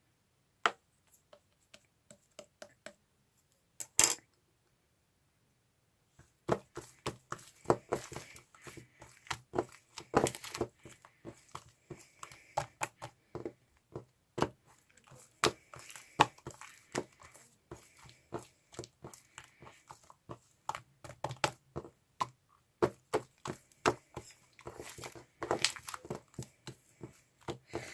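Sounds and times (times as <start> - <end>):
slime popping and crackling: 23.8 - 26.5.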